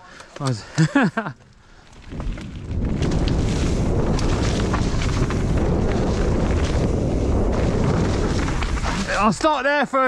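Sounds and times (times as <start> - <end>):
bike clicks and rattles: 0.0 - 9.6
wind buffeting microphone: 1.9 - 9.6.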